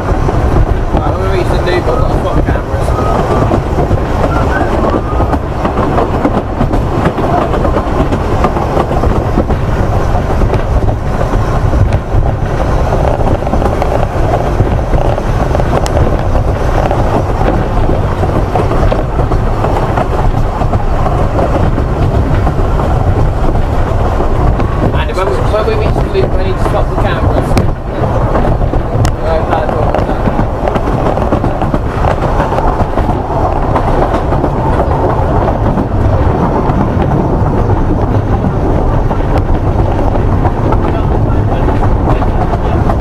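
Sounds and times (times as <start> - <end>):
train wheels on rail: 0.0 - 43.0.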